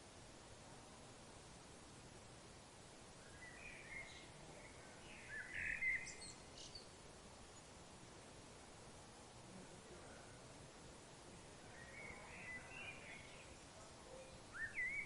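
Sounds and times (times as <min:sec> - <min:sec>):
faint background hiss: 0:00.0 - 0:15.0
bird chirping: 0:03.2 - 0:07.0, 0:11.7 - 0:15.0.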